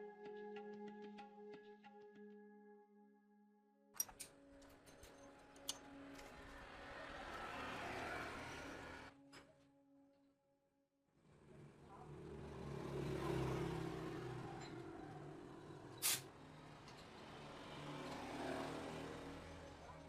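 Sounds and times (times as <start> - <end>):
engine revving: 6.4 - 9.2, 11.3 - 19.8.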